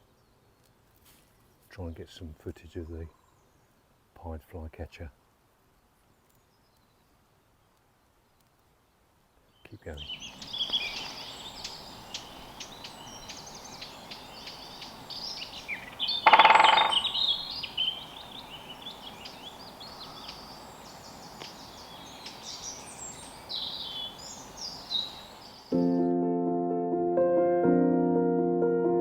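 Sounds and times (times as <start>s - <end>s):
birds singing and calling: 9.6s - 25.8s
loud bird call: 10.0s - 25.8s.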